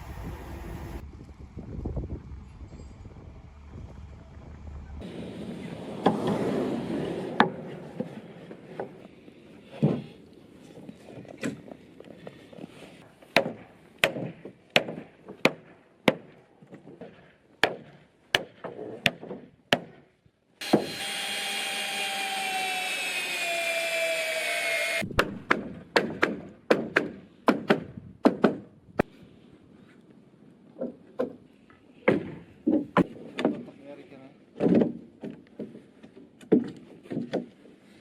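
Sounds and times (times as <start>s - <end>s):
power tool running: 20.6s - 25.1s.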